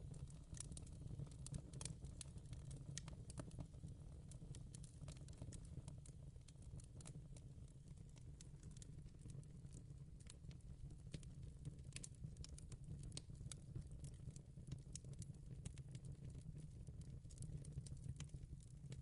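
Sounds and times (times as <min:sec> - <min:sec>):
fireplace crackling: 0:01.7 - 0:01.9.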